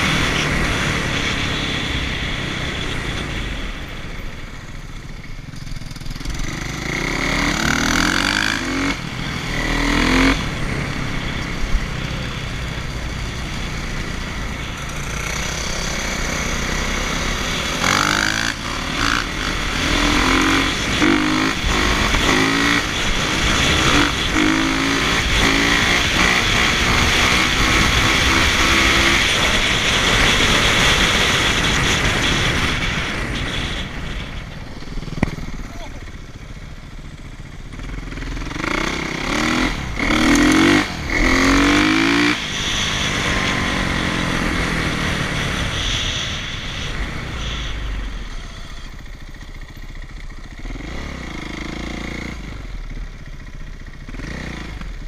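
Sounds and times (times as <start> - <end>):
dirt bike engine revving: 5.5 - 55.0.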